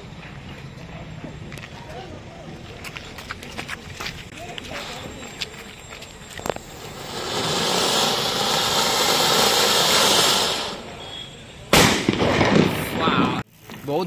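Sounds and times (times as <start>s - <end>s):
firework fountain hissing: 4.4s - 13.7s
firecracker bang: 6.5s - 13.4s.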